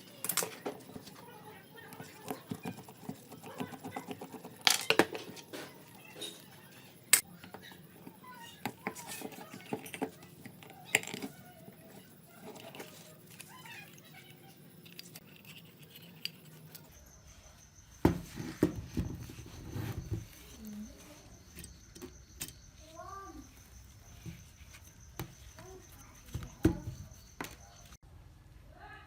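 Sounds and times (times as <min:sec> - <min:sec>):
small hard objects clicking: 0:02.0 - 0:16.9.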